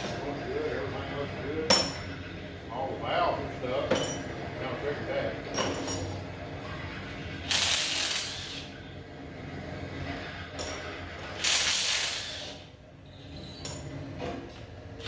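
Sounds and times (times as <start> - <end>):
short bursts of hissing: 7.5 - 8.7, 11.4 - 12.7.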